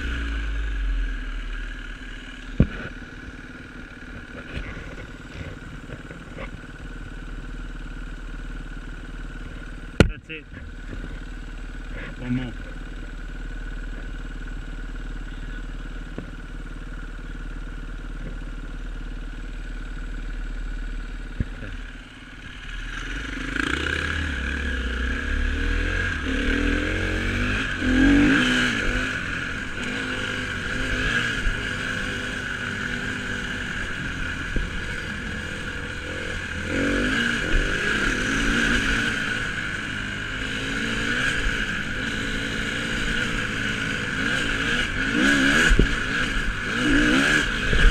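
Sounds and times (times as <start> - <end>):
dirt bike engine revving: 0.0 - 3.2, 22.6 - 47.9.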